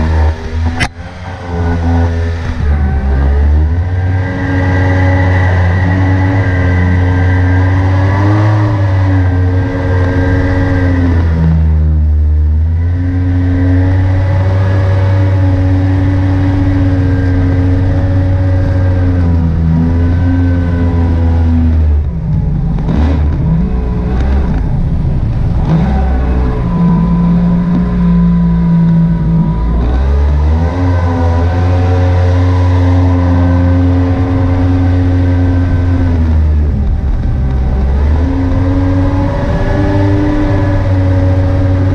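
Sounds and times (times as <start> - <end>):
jet boat engine running: 0.0 - 41.9.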